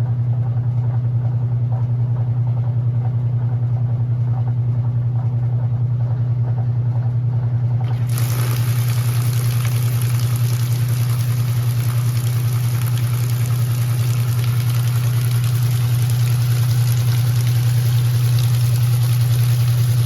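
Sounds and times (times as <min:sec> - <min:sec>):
washing machine motor pulsing hum: 0:00.0 - 0:20.0
faint watery noise: 0:07.9 - 0:20.0.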